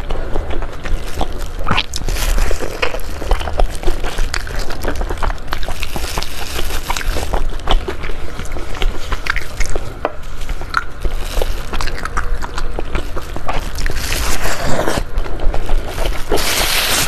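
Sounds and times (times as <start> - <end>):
plastic gloves crinkling: 0.0 - 17.0
steady low hum: 0.0 - 17.0
wet chewing and slurping: 0.0 - 17.0.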